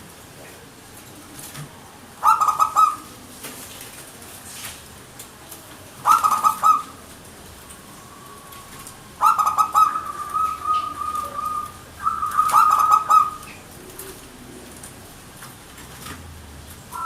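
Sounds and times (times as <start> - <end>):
dove cooing: 1.1 - 3.4, 6.0 - 7.1, 8.0 - 15.1.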